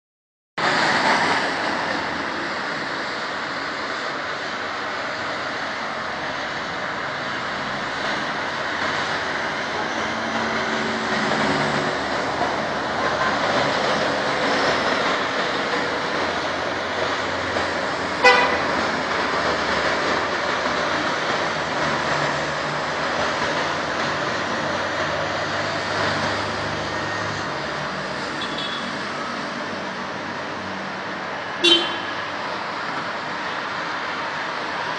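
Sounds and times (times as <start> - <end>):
road traffic passing: 0.6 - 34.9
car horn toot: 18.2 - 18.6, 28.4 - 28.9, 31.6 - 32.2.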